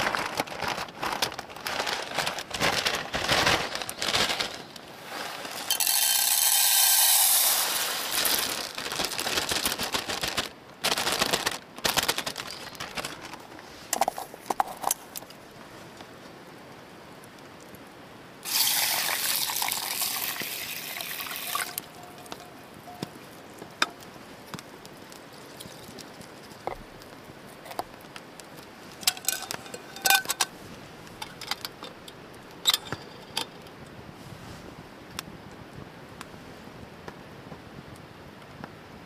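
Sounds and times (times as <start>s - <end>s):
liquid pouring: 5.5s - 8.4s, 18.5s - 22.4s.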